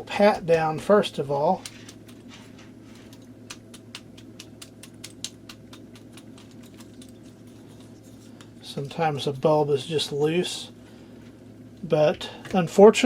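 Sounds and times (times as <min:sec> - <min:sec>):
steady low hum: 0:00.0 - 0:13.0
hands tapping plastic shell: 0:03.5 - 0:07.1.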